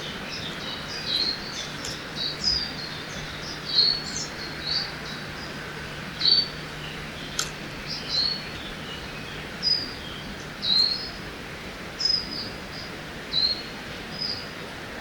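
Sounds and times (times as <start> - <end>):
birds chirping: 0.0 - 11.2
steady background hiss: 0.0 - 15.0.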